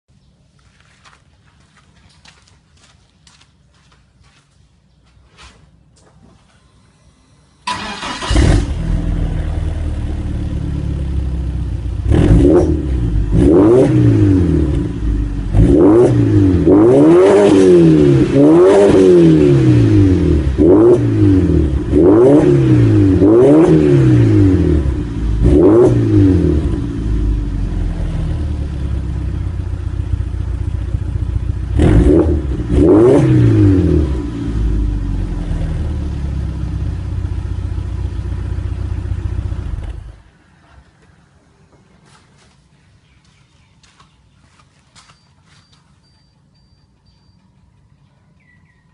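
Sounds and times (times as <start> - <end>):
car engine revving and idling: 6.8 - 40.4.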